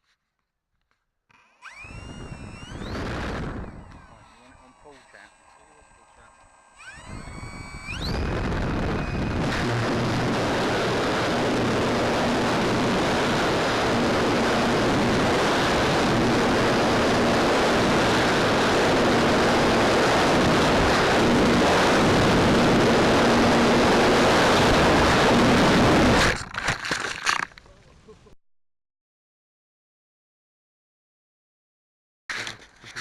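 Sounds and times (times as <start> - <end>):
faint hum: 1.6 - 26.2
wind buffeting microphone: 2.0 - 4.2, 7.0 - 26.2.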